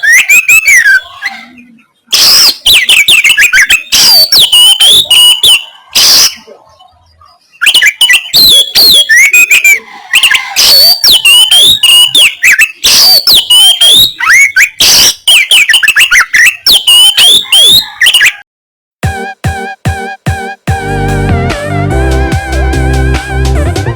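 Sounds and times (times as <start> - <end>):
magpie-robin singing: 0.0 - 18.4.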